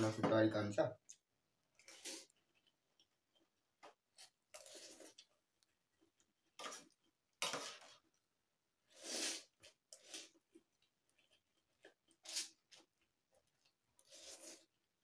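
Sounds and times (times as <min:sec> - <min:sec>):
noodles being slurped: 0:01.8 - 0:02.8, 0:04.1 - 0:05.4, 0:08.8 - 0:15.0.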